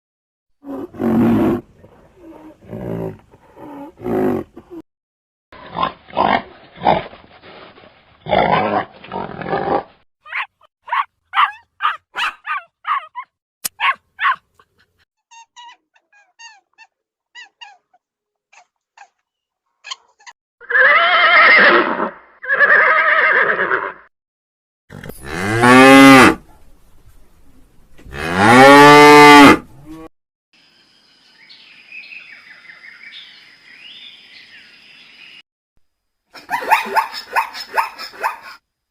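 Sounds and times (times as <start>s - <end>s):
cow mooing: 28.1s - 30.1s.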